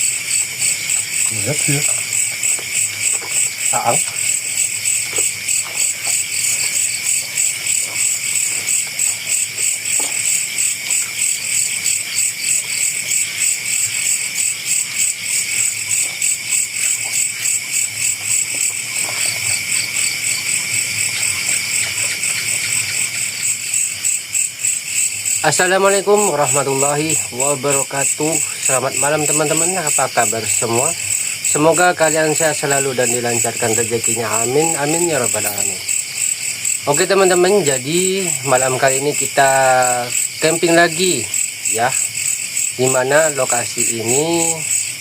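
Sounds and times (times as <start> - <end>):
crickets chirping: 0.0 - 45.0
insects trilling: 0.0 - 45.0.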